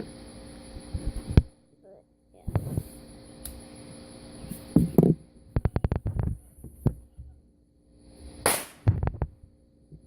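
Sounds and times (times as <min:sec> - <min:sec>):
firecrackers cracking: 0:08.4 - 0:09.2.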